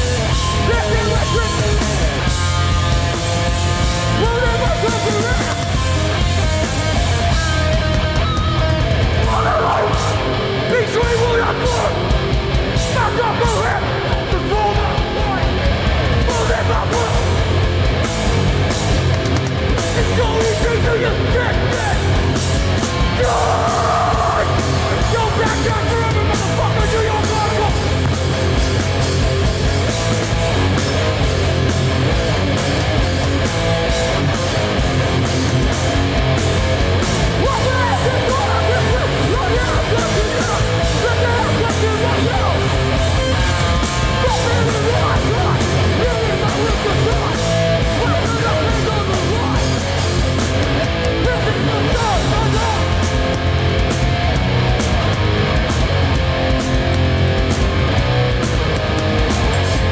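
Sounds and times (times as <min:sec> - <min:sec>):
shouted vocals: 0:00.0 - 0:02.3, 0:04.0 - 0:06.2, 0:09.0 - 0:17.6, 0:19.8 - 0:28.8, 0:35.4 - 0:53.7
bass guitar: 0:00.0 - 0:59.9
distorted electric guitars: 0:00.0 - 0:59.9
pounding drums and cymbals: 0:00.0 - 0:59.9.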